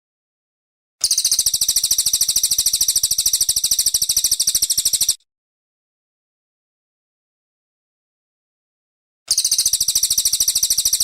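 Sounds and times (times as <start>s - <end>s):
bird high-pitched trill: 1.0s - 5.2s, 9.3s - 11.0s.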